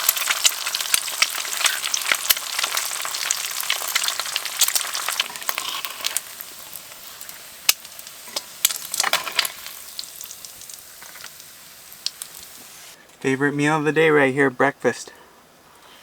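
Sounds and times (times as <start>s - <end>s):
food sizzling in a pan: 0.0s - 13.0s
oil popping: 0.0s - 13.0s.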